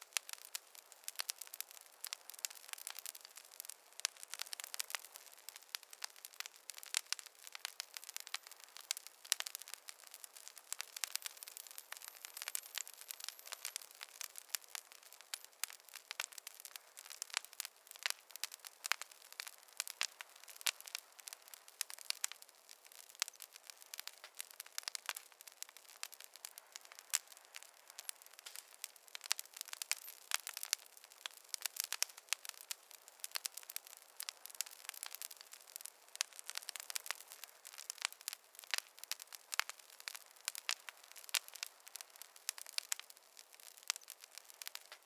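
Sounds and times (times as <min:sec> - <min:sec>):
campfire crackling: 0:00.0 - 0:45.0
faint hiss: 0:00.0 - 0:45.0.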